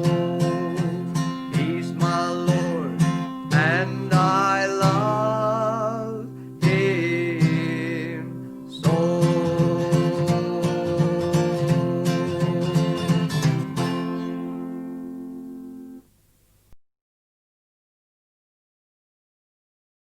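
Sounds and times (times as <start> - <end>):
person singing long notes: 0.0 - 14.0
strummed acoustic guitar: 0.0 - 16.0.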